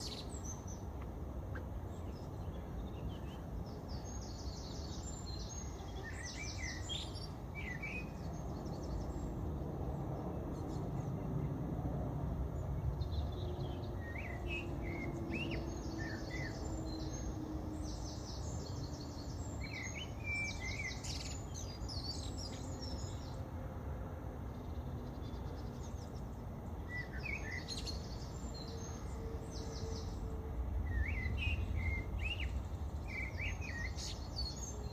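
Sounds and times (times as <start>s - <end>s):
small birds chirping: 0.0s - 11.5s
low rumble of city traffic: 0.0s - 34.9s.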